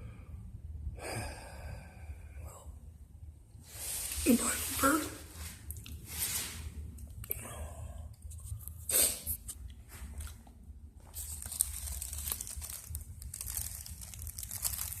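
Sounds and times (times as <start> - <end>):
plastic bag crinkling: 11.1 - 15.0.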